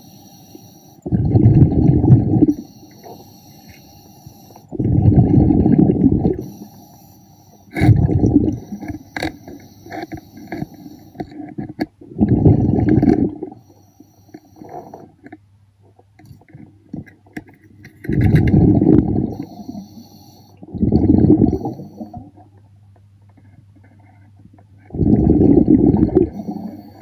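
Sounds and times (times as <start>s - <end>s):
exhaled bubbles rumbling: 1.0s - 2.6s, 4.7s - 6.5s, 7.7s - 8.9s, 12.0s - 13.6s, 18.0s - 19.6s, 20.6s - 22.6s, 24.8s - 26.7s.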